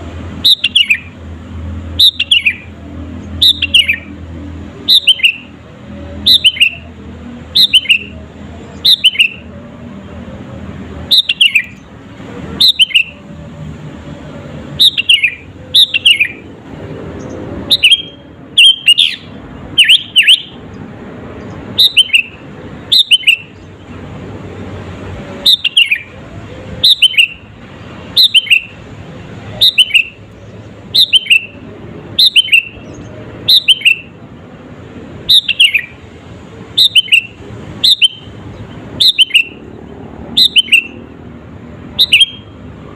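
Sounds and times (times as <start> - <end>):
bird singing whistles: 0.4 - 1.1, 2.0 - 2.6, 3.4 - 4.1, 4.9 - 5.5, 6.2 - 6.9, 7.5 - 8.2, 8.8 - 9.5, 11.1 - 11.8, 12.6 - 13.2, 14.8 - 16.4, 17.7 - 20.6, 21.8 - 23.6, 25.4 - 26.1, 26.8 - 27.4, 28.2 - 28.8, 29.6 - 30.2, 30.9 - 31.6, 32.2 - 34.1, 35.3 - 36.0, 36.8 - 38.3, 39.0 - 39.6, 40.4 - 41.0, 42.0 - 42.5.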